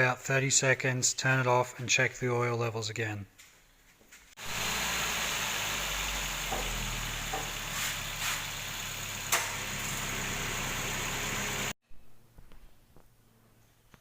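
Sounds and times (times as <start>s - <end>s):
car engine idling: 4.4s - 11.8s.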